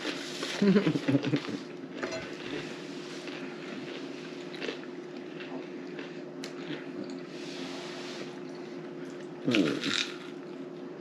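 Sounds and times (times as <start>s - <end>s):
steady low hum: 0.0s - 11.0s
chewing and mouth noises: 1.4s - 7.4s, 8.3s - 10.5s.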